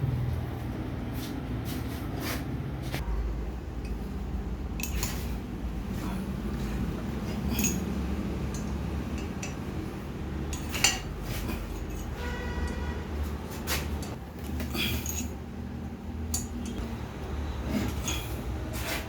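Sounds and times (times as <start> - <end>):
steady low hum: 0.0 - 19.0
metal parts clinking: 4.8 - 5.4, 7.4 - 9.7, 10.5 - 12.8, 14.0 - 15.4, 16.3 - 16.8.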